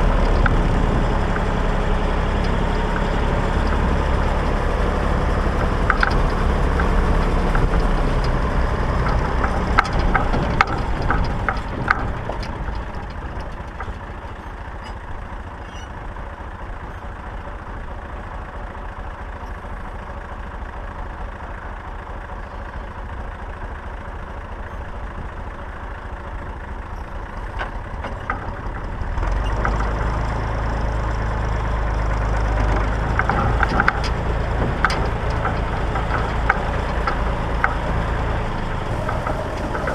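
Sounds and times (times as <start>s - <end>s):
metal rattles: 0.0s - 17.1s, 26.8s - 39.9s
tractor engine running: 0.0s - 39.9s.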